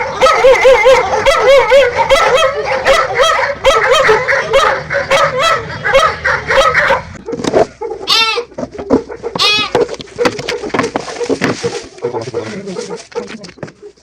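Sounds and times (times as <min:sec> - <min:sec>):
young animals crying: 0:00.0 - 0:02.9, 0:07.8 - 0:09.9.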